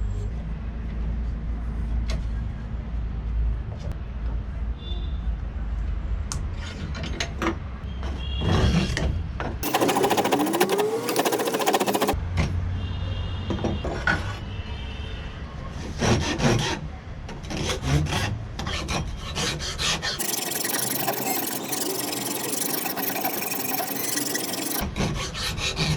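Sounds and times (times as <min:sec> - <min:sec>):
file scraping wood: 0:09.6 - 0:12.2, 0:17.6 - 0:25.9.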